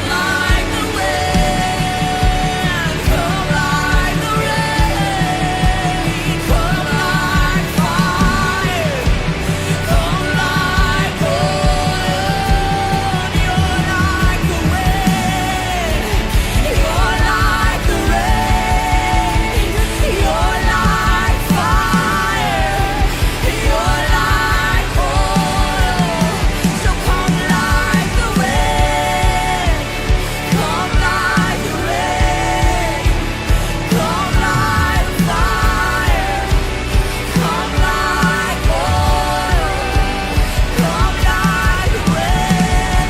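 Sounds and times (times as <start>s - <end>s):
steady drum beat: 0.0s - 43.0s
sustained singing: 0.0s - 43.0s
worship band music: 0.0s - 43.0s.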